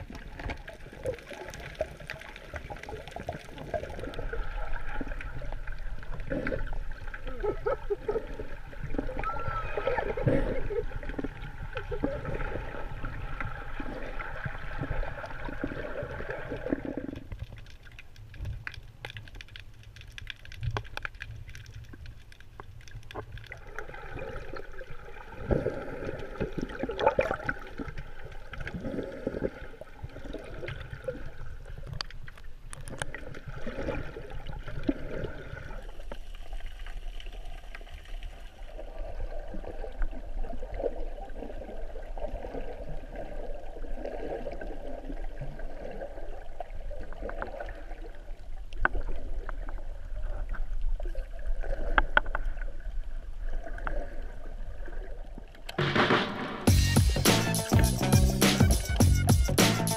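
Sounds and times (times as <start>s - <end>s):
muffled underwater sloshing: 0.0s - 56.5s
water splashes: 0.0s - 59.9s
clicks and pops underwater: 10.0s - 24.8s, 25.4s - 35.5s, 51.8s - 52.7s.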